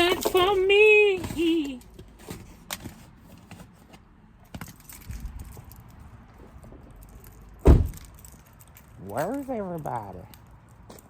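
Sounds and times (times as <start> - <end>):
loud thump: 7.6 - 8.1.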